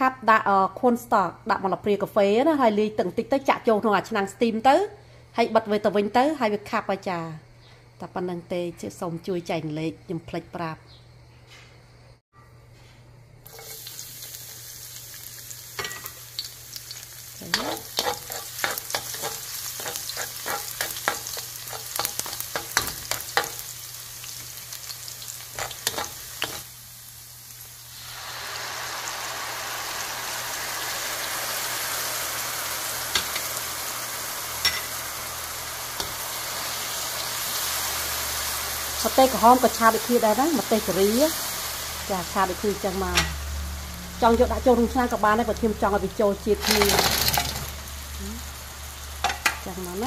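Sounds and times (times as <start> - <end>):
garlic sizzling in hot oil: 13.4 - 50.0
spoon knocking and scraping pan: 17.5 - 23.7, 25.5 - 26.6, 34.6 - 35.0, 49.2 - 49.6.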